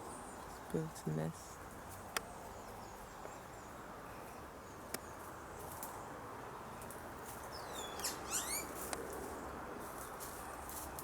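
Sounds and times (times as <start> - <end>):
bird whistle and chirping: 7.6 - 8.8.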